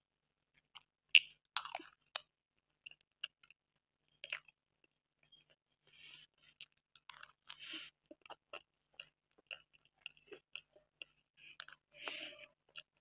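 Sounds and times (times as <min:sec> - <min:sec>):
person chewing: 0:00.8 - 0:03.6, 0:04.2 - 0:04.5, 0:06.4 - 0:13.0.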